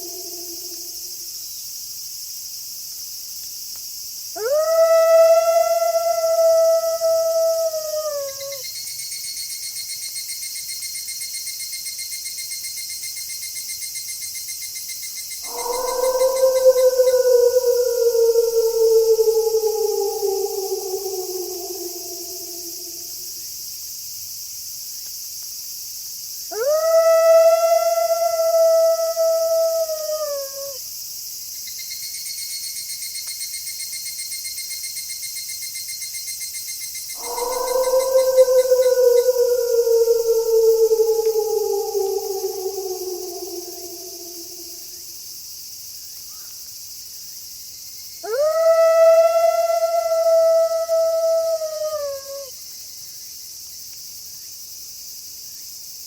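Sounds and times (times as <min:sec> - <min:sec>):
wolf howling: 0:00.0 - 0:01.2, 0:04.4 - 0:08.6, 0:15.4 - 0:23.4, 0:26.5 - 0:30.8, 0:37.2 - 0:45.2, 0:48.2 - 0:52.5
crickets chirping: 0:00.0 - 0:56.0.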